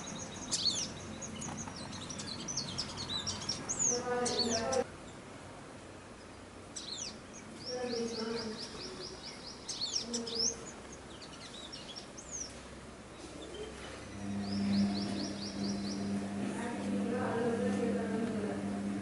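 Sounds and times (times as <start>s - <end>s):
birds whistling downward: 13.4s - 16.5s.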